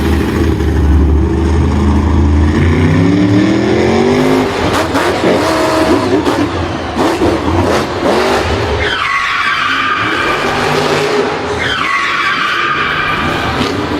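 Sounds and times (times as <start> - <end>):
vehicle engine revving: 0.0 - 9.0.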